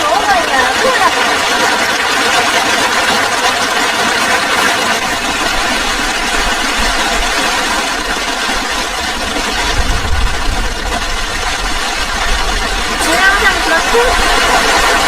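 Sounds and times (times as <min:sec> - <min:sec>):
heavy rain pouring: 0:00.0 - 0:15.0
low gusty rumble: 0:05.0 - 0:15.0.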